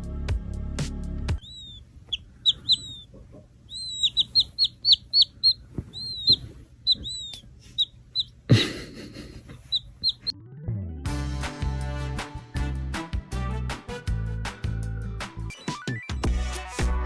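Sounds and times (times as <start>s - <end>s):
bird chirping: 1.4s - 8.4s, 9.7s - 10.4s.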